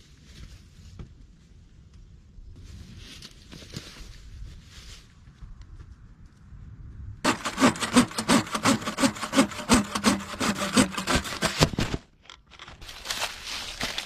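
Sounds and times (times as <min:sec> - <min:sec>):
hand saw cutting wood: 0:07.3 - 0:12.0.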